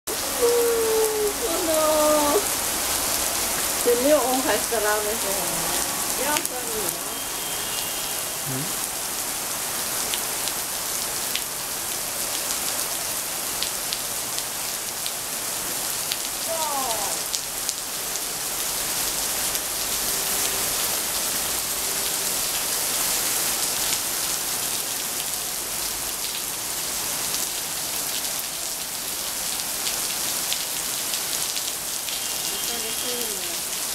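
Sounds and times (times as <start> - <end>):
heavy rain on paving: 0.1 - 33.9.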